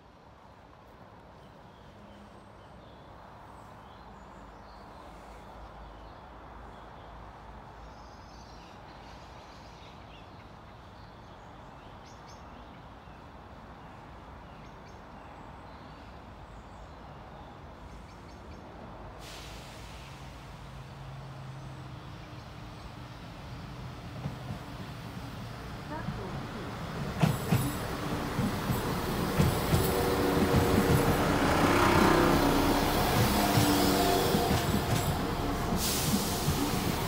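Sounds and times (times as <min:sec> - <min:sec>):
hiss: 0:19.2 - 0:21.0, 0:33.2 - 0:37.0
diesel train droning: 0:19.2 - 0:37.0.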